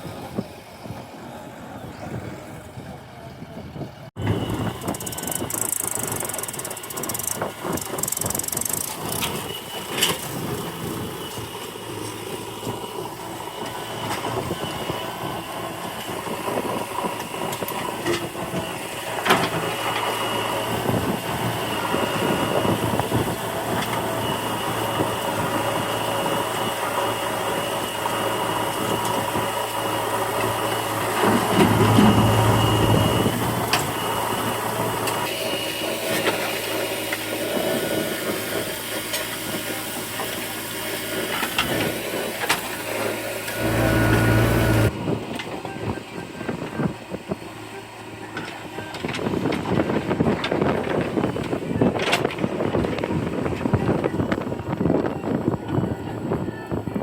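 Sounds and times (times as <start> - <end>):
diesel engine running: 0.0 - 45.3
high whine: 30.4 - 35.3, 43.5 - 45.0.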